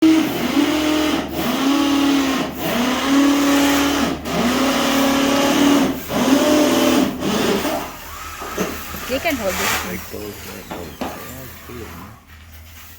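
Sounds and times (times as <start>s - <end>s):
motor cycling up and down in pitch: 0.0s - 8.5s.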